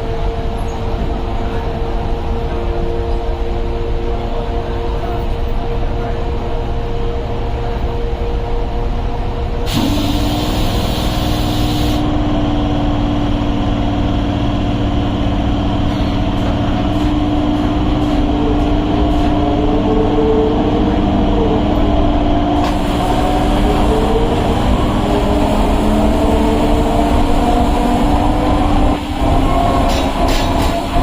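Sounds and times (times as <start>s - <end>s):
electric train rumble: 0.0s - 31.0s
loud hiss: 9.7s - 12.0s.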